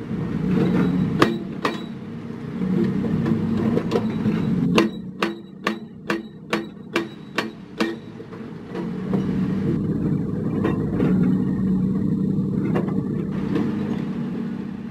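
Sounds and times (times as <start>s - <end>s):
heavy machinery diesel engine: 0.0s - 14.9s
sharp knocks: 1.2s - 2.0s, 3.1s - 8.2s.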